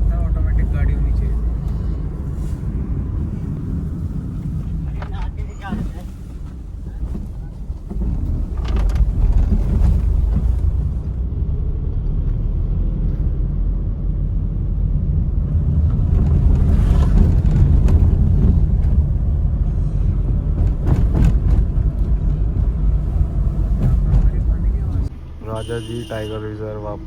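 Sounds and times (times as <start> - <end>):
vehicle rumble: 0.0 - 27.0
wind on microphone: 14.8 - 25.1.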